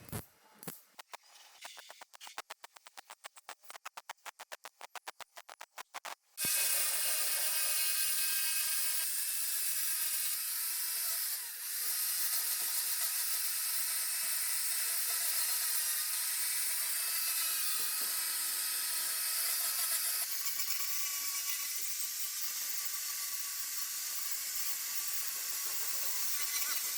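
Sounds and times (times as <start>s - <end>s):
power tool whirring: 6.4s - 26.9s.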